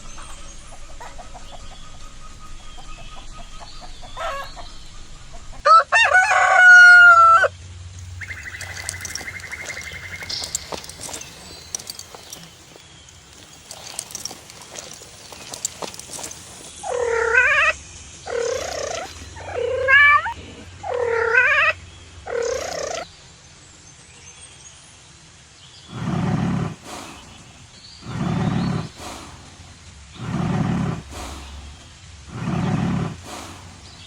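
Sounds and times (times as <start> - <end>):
lion roaring: 25.9 - 34.0.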